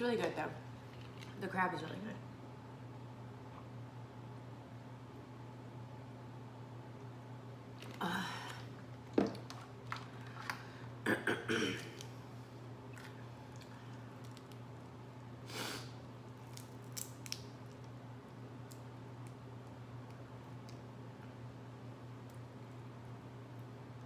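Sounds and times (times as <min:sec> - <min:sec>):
wet crunches: 0:12.9 - 0:14.9, 0:16.3 - 0:17.9.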